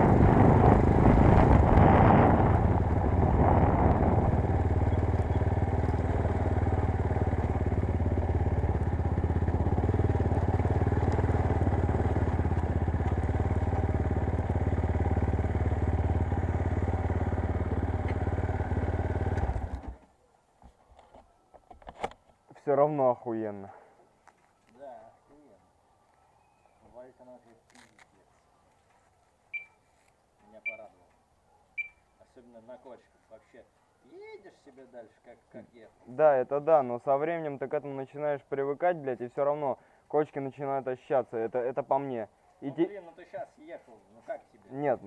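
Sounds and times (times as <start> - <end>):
motorcycle engine idling: 4.3 - 20.0.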